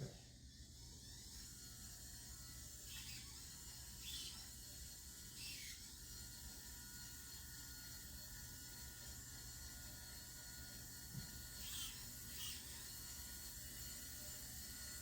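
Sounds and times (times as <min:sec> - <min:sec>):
model car motor whirring: 0:00.0 - 0:15.0.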